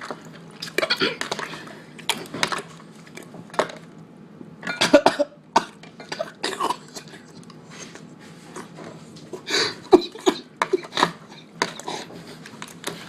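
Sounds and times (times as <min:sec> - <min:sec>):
man coughing: 0:04.7 - 0:07.2, 0:09.5 - 0:12.1.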